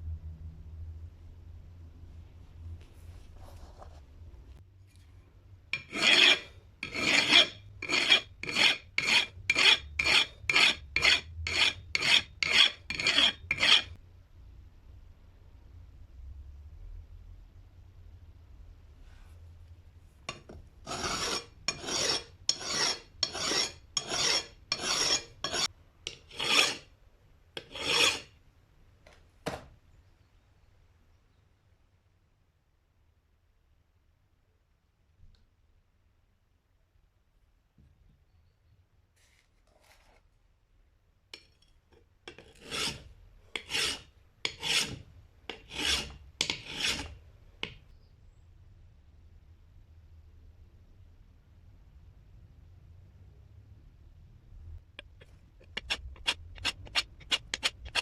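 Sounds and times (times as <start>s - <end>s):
rasping scraping strokes: 5.8s - 14.0s, 20.3s - 26.9s, 27.6s - 28.3s, 42.3s - 47.2s, 55.0s - 58.0s.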